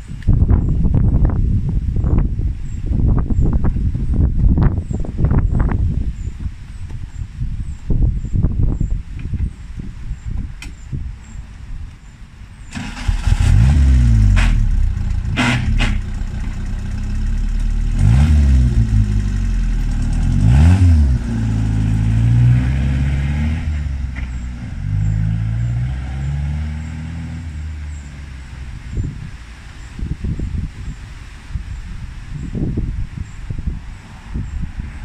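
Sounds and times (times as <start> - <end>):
sharp exhaust cracks: 12.7 - 23.0
car engine revving: 12.7 - 28.8.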